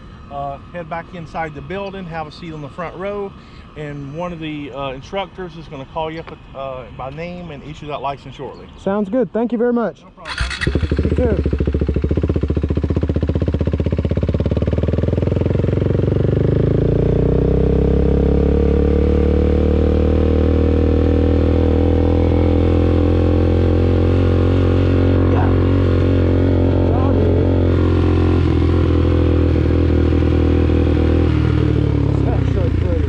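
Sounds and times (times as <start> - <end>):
motorcycle engine pulling away: 10.2 - 33.0.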